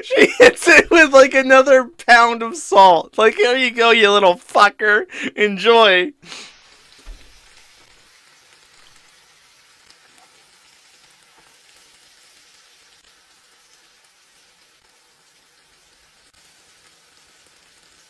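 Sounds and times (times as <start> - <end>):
food sizzling in a skillet: 6.2 - 18.0.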